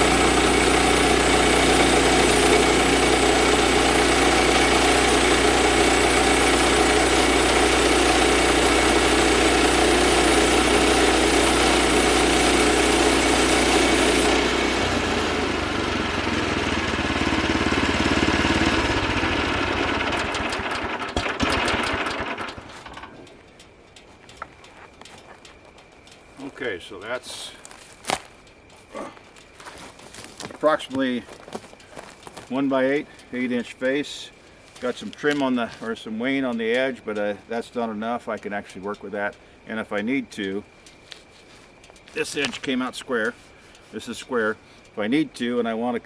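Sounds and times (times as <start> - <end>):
bandsaw mill sawing log: 0.0 - 22.9.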